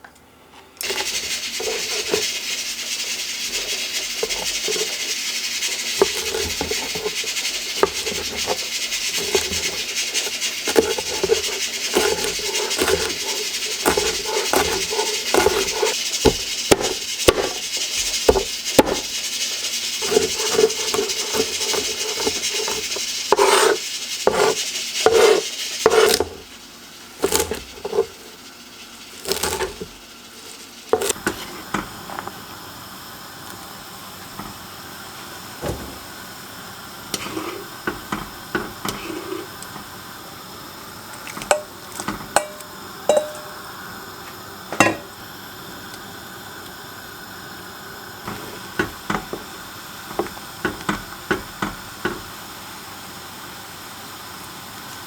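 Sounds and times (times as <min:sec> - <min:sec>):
steady cooking hiss: 0:00.4 - 0:55.0
utensils and dishes clinking: 0:03.5 - 0:26.4, 0:41.3 - 0:43.7.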